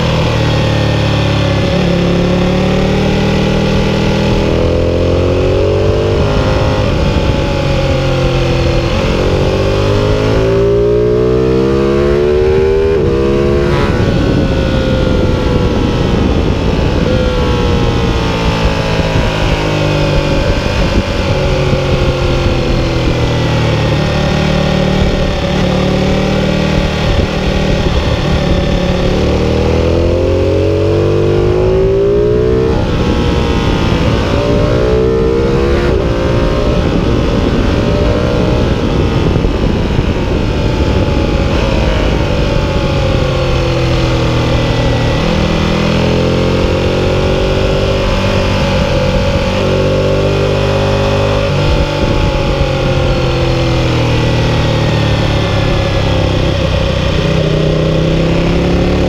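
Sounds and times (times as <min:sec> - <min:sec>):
motorcycle engine revving: 0:00.0 - 0:59.0
steady rush of noise: 0:12.0 - 0:59.0.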